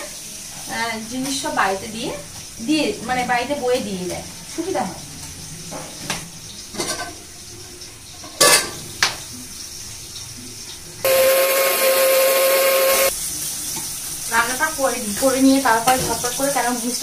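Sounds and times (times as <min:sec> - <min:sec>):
loud hiss with hum: 0:11.1 - 0:13.1.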